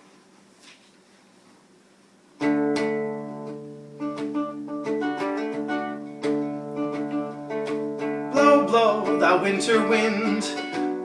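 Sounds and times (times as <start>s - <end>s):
guitar chords and picked notes: 2.4s - 11.0s.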